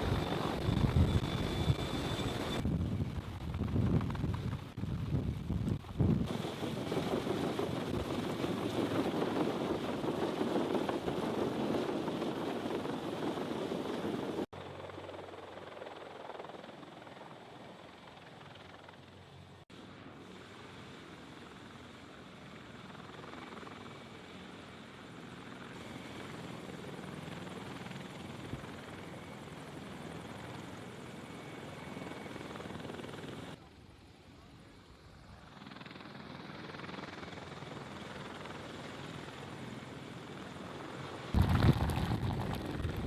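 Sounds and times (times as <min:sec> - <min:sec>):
helicopter rumble: 0:00.0 - 0:43.0.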